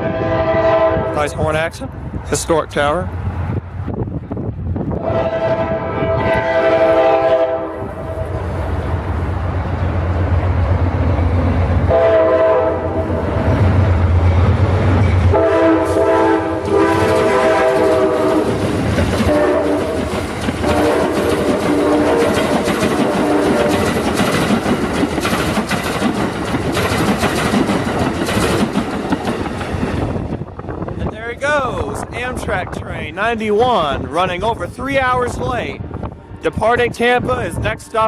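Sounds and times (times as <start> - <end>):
train horn blasts: 0.0 - 1.4, 5.0 - 8.4, 11.9 - 13.2, 15.2 - 18.6, 19.2 - 20.0, 20.6 - 23.8
wheels clacking on rails: 13.4 - 34.6.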